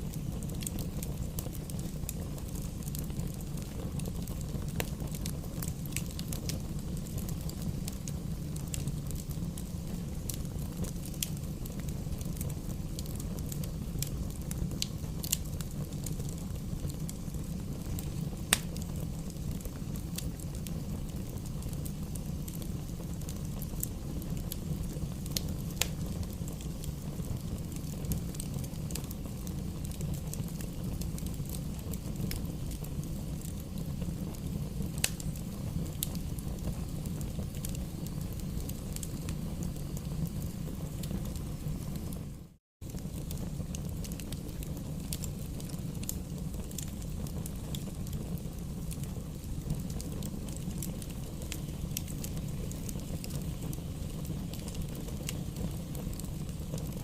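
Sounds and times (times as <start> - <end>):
bonfire rushing: 0.0 - 57.0
burning wood crackling and popping: 0.0 - 57.0.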